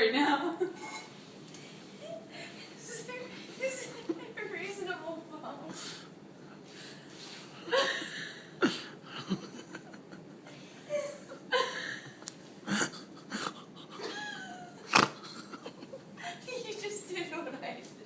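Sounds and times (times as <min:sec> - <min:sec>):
people laughing: 0:07.7 - 0:12.2.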